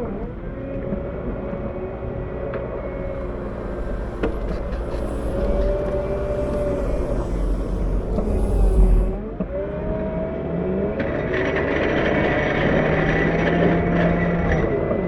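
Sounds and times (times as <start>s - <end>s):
wheel loader diesel engine revving: 2.9s - 9.8s
high steady whine with hiss: 3.0s - 9.2s.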